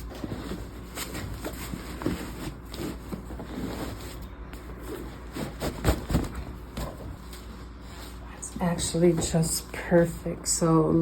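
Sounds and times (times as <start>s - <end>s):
canvas bag rustling and scraping: 0.0s - 8.5s.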